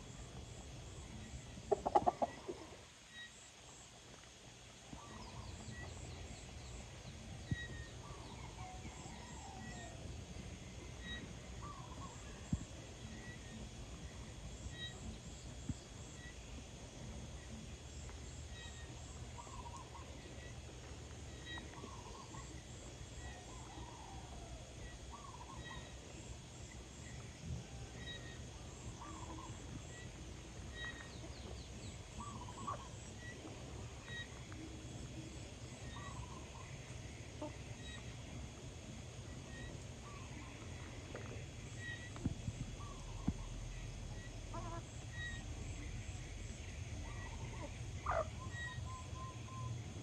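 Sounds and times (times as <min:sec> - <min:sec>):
chickens clucking softly: 0:01.2 - 0:03.0, 0:44.4 - 0:45.6, 0:47.0 - 0:48.8
low background rumble: 0:04.4 - 0:50.0
faint high chirp: 0:04.9 - 0:10.0, 0:10.9 - 0:13.6, 0:14.6 - 0:15.5, 0:18.5 - 0:20.6, 0:21.3 - 0:22.6, 0:27.1 - 0:30.1, 0:30.7 - 0:33.4, 0:34.0 - 0:36.8, 0:39.2 - 0:40.9, 0:41.7 - 0:46.1, 0:46.7 - 0:49.8.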